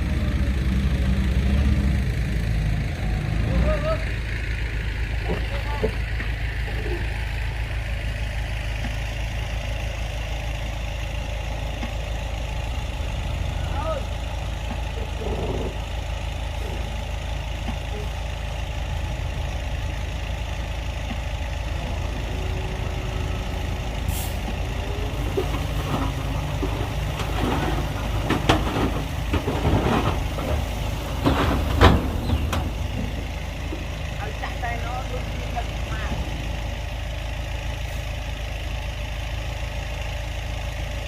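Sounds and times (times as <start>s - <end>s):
heavy diesel machinery running: 0.0s - 41.0s
metal knocks and clanks: 24.1s - 33.9s.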